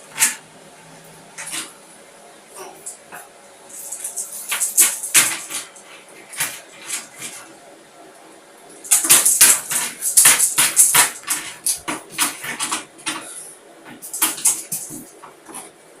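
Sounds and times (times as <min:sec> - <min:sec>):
rapid sharp tapping: 0:08.8 - 0:15.8.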